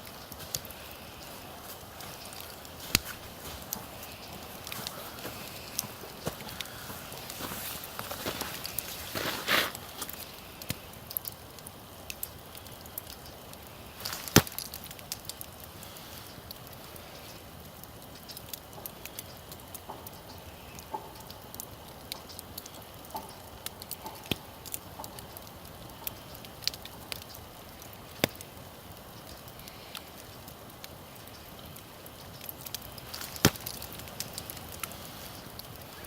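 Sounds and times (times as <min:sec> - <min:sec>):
campfire crackling and popping: 0:00.0 - 0:36.0.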